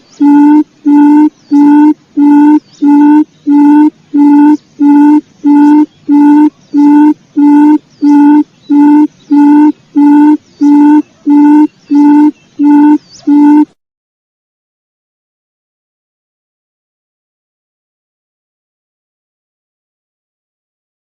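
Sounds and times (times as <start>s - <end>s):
low hooting quail call: 0.0s - 13.8s.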